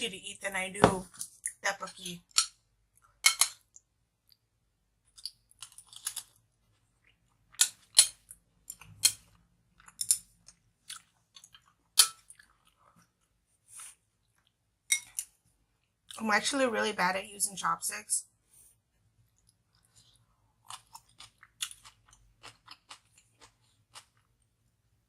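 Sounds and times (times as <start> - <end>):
mouth chewing crunchy food: 5.0 - 14.6, 19.2 - 24.5.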